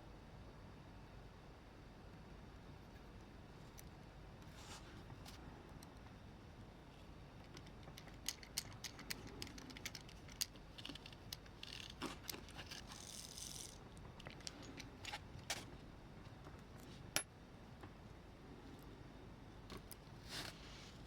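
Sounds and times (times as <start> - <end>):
small metal parts clinking: 7.4 - 15.6.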